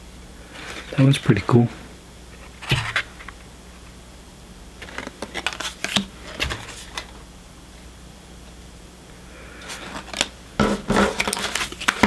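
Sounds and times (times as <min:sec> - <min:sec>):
trading cards clicking and rustling: 0:04.8 - 0:07.2, 0:09.7 - 0:12.0.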